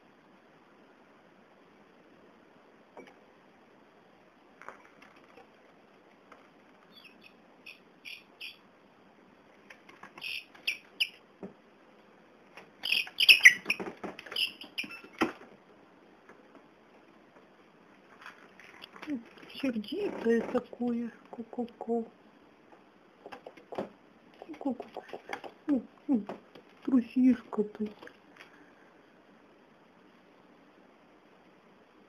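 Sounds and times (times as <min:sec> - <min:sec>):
young bird peeping: 0:06.9 - 0:08.7, 0:10.2 - 0:11.2, 0:12.8 - 0:15.2.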